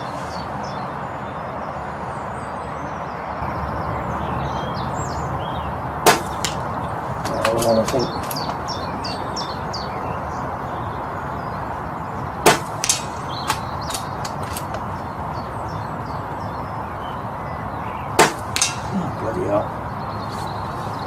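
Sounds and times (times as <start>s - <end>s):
birds chirping: 0.0s - 21.0s
air rifle shot: 6.0s - 6.7s, 12.4s - 14.7s, 18.2s - 19.0s.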